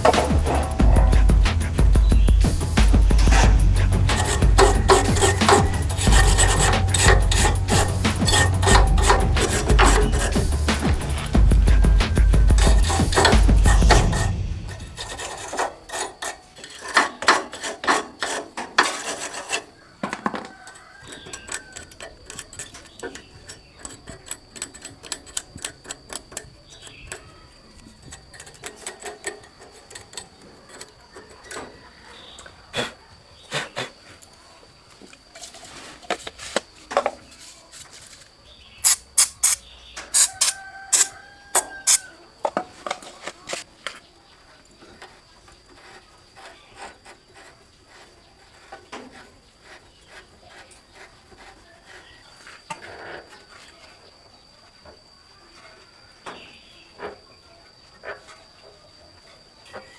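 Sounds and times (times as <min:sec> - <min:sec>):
hand tools clicking and knocking: 0:00.0 - 0:31.8, 0:38.8 - 0:43.7.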